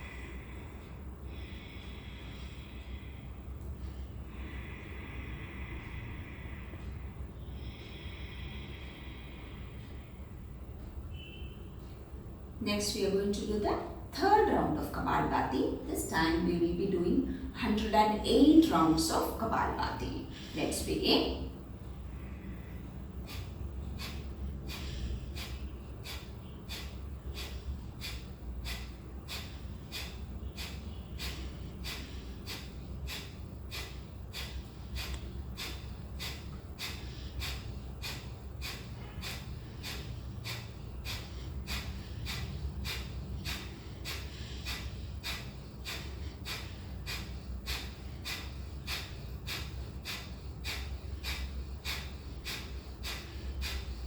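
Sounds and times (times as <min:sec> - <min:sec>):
forceful nasal exhalations: 0:22.2 - 0:54.0.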